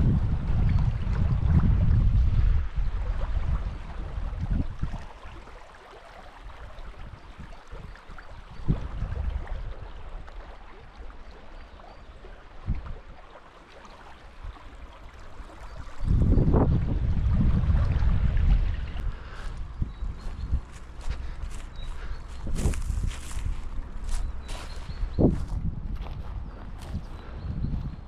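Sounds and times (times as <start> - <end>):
wind buffeting microphone: 0.0 - 5.4, 6.4 - 11.0, 14.4 - 28.0
stream water rushing: 3.4 - 25.3.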